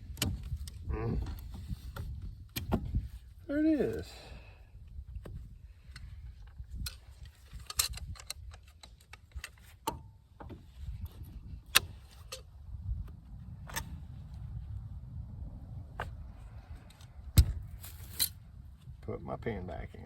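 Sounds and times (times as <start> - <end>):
metallic clicks of small parts: 6.8 - 9.6.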